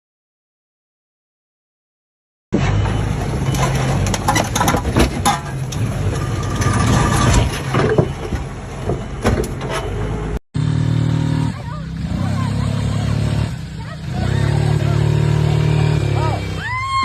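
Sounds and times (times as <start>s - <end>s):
scraping noises: 2.9s - 10.1s
clicks and knocks: 3.2s - 9.9s
vehicle engine running: 9.9s - 17.0s.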